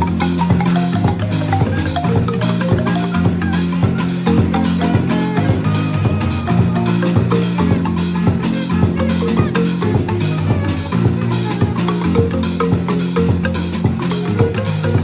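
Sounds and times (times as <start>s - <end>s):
deep bass marimba notes: 0.0s - 15.0s
drums keeping a beat: 0.0s - 15.0s
marimba notes: 0.0s - 15.0s.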